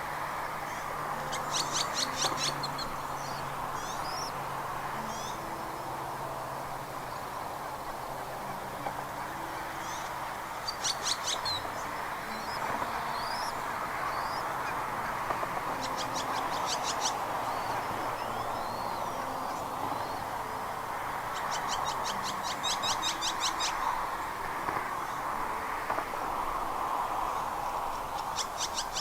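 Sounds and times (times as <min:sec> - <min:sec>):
steady outdoor hiss: 0:00.0 - 0:29.0
birds chirping: 0:00.4 - 0:05.8, 0:08.1 - 0:24.1.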